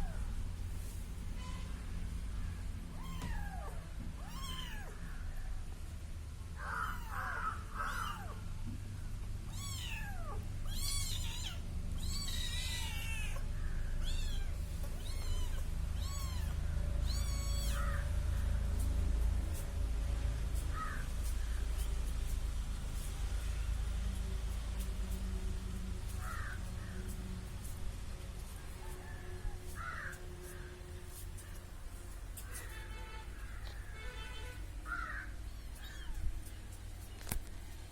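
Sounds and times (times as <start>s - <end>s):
kitten meowing: 3.0s - 5.0s, 6.8s - 8.4s, 9.5s - 18.0s, 35.5s - 36.2s.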